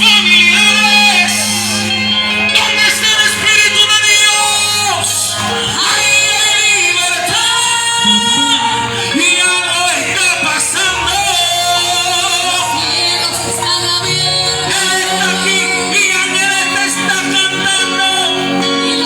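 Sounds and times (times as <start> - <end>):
people singing worship music: 0.0 - 19.0
band playing: 8.0 - 9.6.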